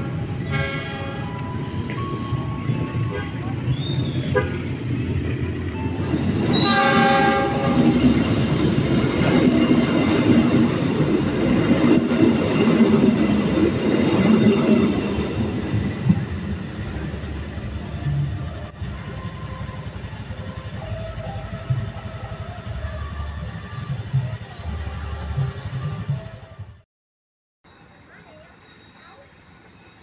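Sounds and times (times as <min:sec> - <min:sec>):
train rumble and wheel clatter: 0:00.0 - 0:26.8
train horn blast: 0:00.4 - 0:01.3, 0:06.5 - 0:08.0.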